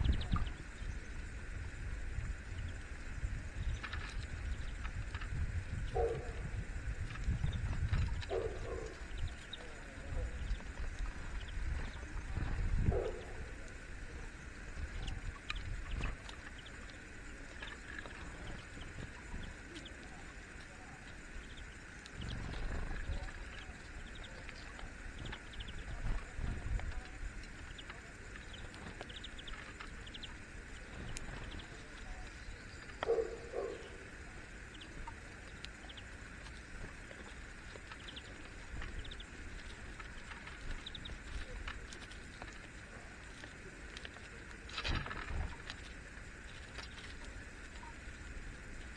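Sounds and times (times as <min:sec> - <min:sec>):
birds chirping: 0:00.0 - 0:48.9
low outdoor rumble: 0:00.0 - 0:48.9
faint ticks: 0:14.8 - 0:33.9, 0:34.7 - 0:48.9.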